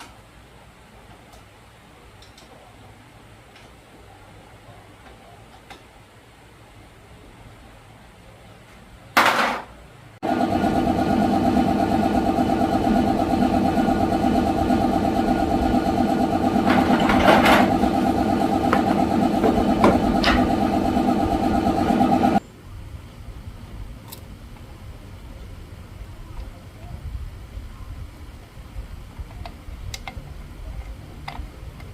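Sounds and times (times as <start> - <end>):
motorcycle engine starting and idling: 10.2 - 22.4.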